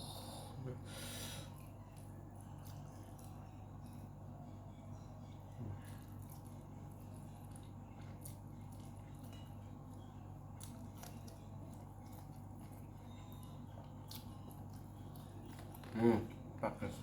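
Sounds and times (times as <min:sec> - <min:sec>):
steady low hum: 0:00.0 - 0:17.0
person chewing food: 0:05.8 - 0:16.7.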